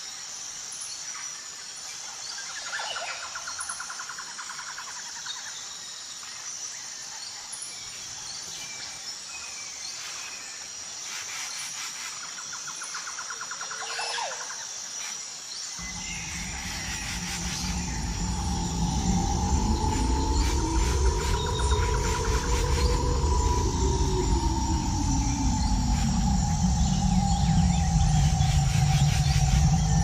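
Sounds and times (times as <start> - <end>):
high-pitched insect drone: 12.0 - 30.0
low rumble: 15.8 - 30.0.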